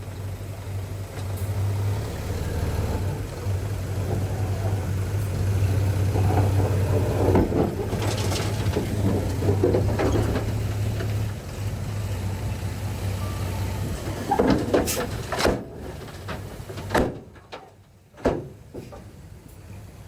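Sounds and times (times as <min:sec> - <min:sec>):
diesel engine running: 0:00.0 - 0:20.0
metallic clanks and knocks: 0:06.1 - 0:11.3, 0:14.0 - 0:19.1.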